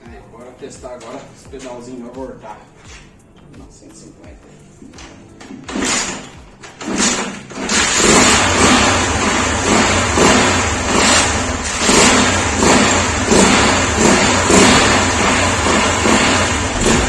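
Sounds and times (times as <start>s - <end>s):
motorcycle kickstart kicks: 5.0s - 17.0s
small motorcycle engine revving: 5.7s - 17.0s.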